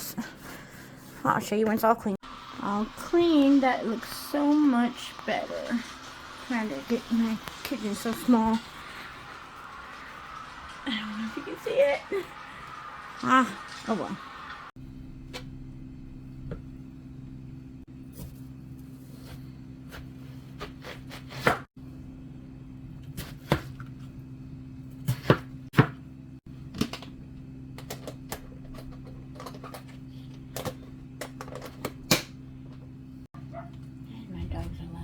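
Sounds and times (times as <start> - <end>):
kitchen items clicking and knocking: 26.7 - 32.3.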